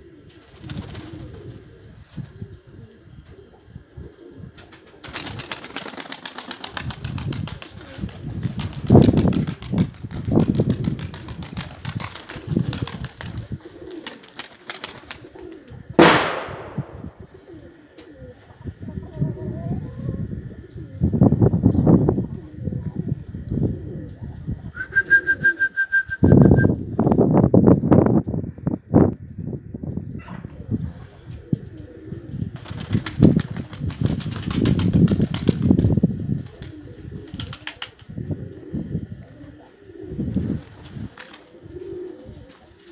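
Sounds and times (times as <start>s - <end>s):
pigeons cooing: 0.0s - 25.8s, 30.2s - 42.9s
wing flaps: 5.0s - 17.3s, 32.6s - 38.2s
sudden loud burst: 16.0s - 17.2s.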